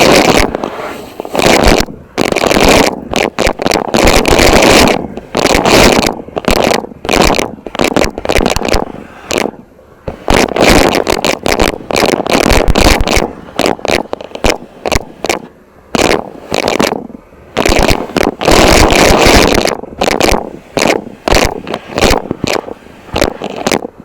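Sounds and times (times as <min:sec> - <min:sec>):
vacuum cleaner crackling and scraping: 0:00.0 - 0:09.5.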